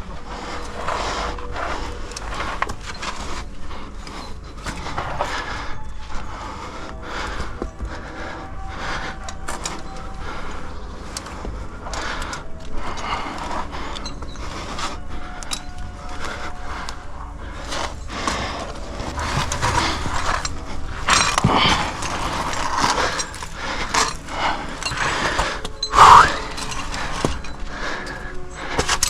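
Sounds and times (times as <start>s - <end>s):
clothing scraping on rock: 0.0s - 5.6s, 17.4s - 29.0s
metal climbing gear jangling: 0.0s - 29.0s.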